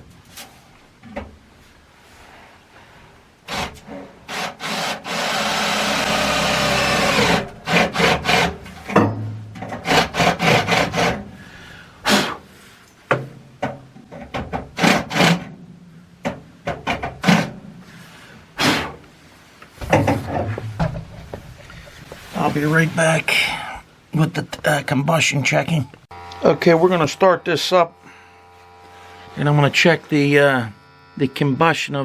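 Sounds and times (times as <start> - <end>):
rasping rubbing noise: 6.0 - 8.8, 9.8 - 11.3
sharp knocks and clicks: 8.4 - 10.6, 13.1 - 15.6, 16.2 - 17.6.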